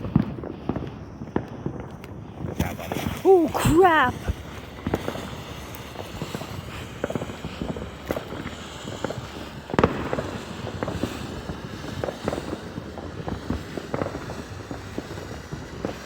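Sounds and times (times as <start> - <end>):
fireworks popping: 0.0 - 16.0
loud firework bang: 5.9 - 15.1.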